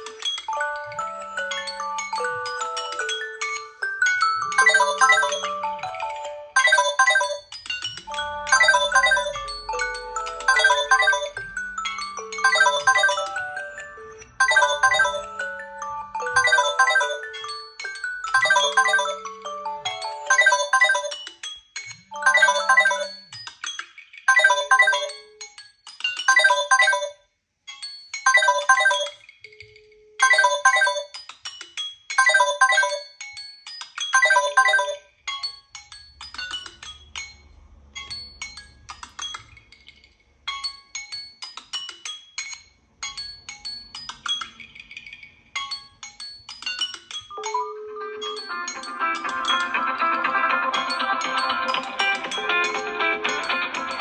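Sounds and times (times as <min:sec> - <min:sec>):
phone chiming melody: 0:00.0 - 0:21.3, 0:22.0 - 0:23.3, 0:24.3 - 0:25.4, 0:26.3 - 0:27.2, 0:28.1 - 0:31.2, 0:32.1 - 0:33.3, 0:34.1 - 0:35.7, 0:47.3 - 0:54.0.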